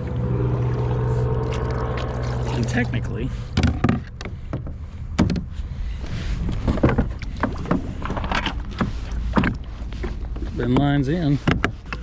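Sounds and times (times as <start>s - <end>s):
steady low rumble: 0.0s - 11.1s
knocks and clunks in a kayak: 2.6s - 12.0s.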